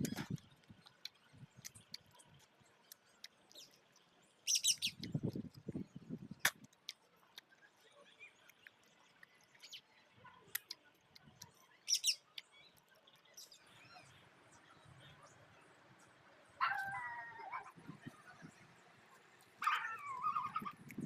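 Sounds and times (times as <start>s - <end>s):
whining animal call: 19.6s - 20.8s.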